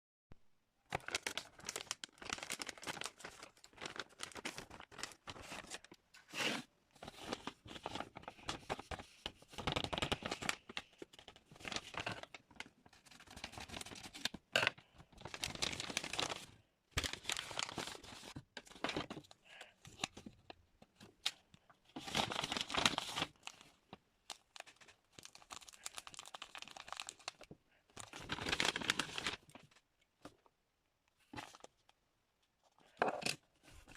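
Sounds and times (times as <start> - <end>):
packaging tearing and crinkling: 0.9 - 6.6, 15.2 - 16.4, 22.0 - 23.6, 24.3 - 27.4, 28.0 - 29.4.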